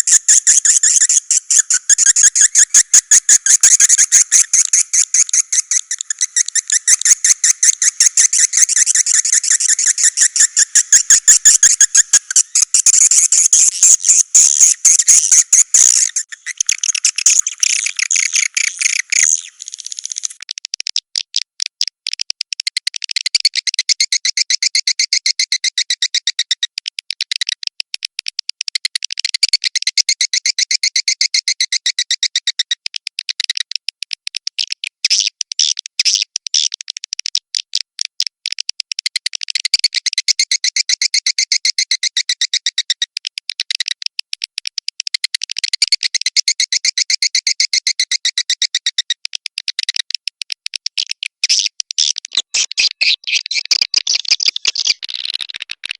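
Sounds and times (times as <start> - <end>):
swiftlet chattering trills: 0.0 - 20.4.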